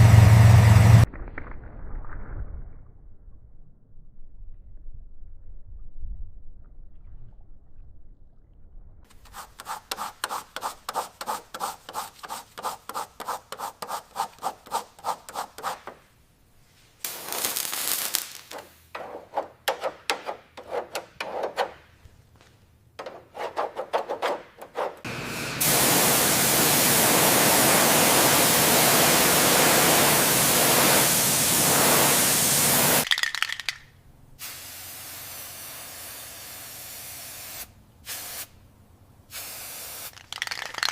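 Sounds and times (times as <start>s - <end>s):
rhythmic sanding strokes: 9.2s - 16.0s, 23.0s - 25.1s
spray hiss: 9.3s - 15.9s, 17.0s - 19.1s, 25.1s - 33.0s, 34.4s - 38.6s, 39.3s - 40.1s.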